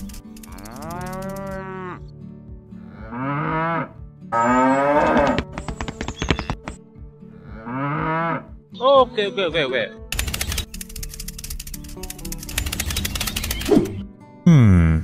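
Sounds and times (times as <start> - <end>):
cows mooing: 0.5 - 2.1, 2.8 - 5.5, 7.4 - 8.5.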